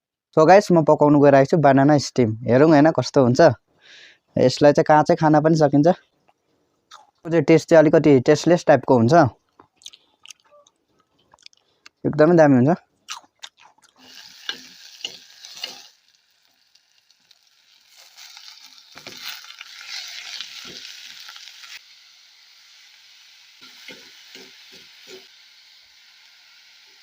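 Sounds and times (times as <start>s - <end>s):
utensil scraping a pan: 14.0s - 16.0s
food sizzling in a pan: 14.0s - 27.0s.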